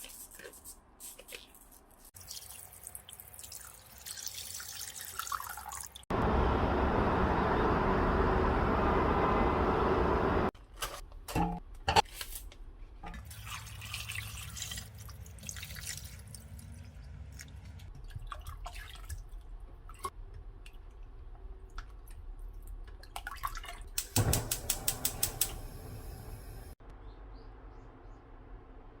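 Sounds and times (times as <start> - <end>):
water dripping and trickling: 1.4 - 6.1, 13.1 - 24.1
clicks and knocks: 24.0 - 26.4.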